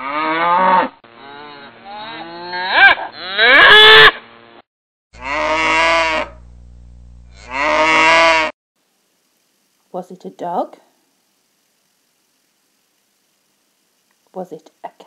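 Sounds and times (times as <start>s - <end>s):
cow mooing: 0.0s - 3.9s, 5.2s - 6.4s, 7.3s - 8.5s.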